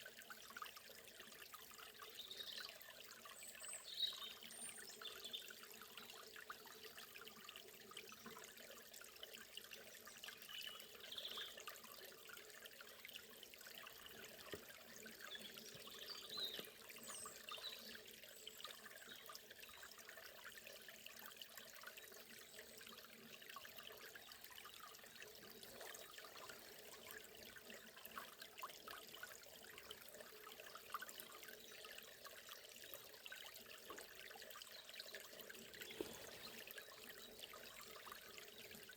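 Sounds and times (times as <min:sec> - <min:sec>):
river rushing and trickling: 0:35.6 - 0:37.0.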